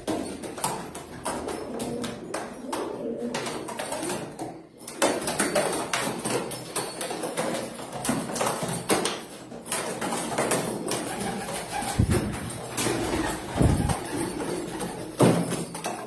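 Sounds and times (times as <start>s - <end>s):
pigeon wings flapping: 5.0s - 16.0s.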